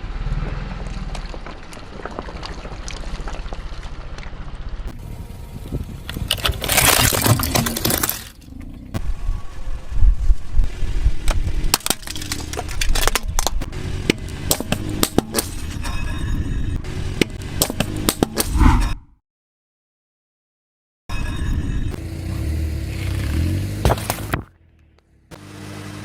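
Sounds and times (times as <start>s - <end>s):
brittle object cracking under tyre: 0.4s - 4.8s, 6.0s - 8.5s, 11.3s - 15.6s
low rumble: 18.5s - 19.1s.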